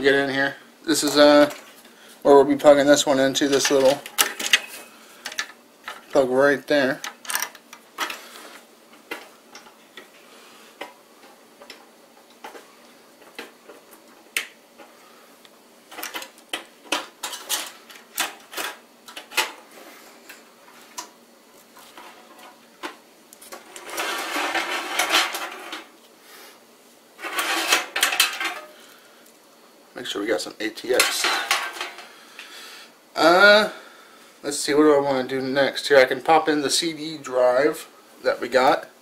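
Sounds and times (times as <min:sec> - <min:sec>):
clattering and rustling: 0:03.4 - 0:06.1, 0:15.9 - 0:26.0, 0:27.2 - 0:28.8, 0:30.9 - 0:32.2.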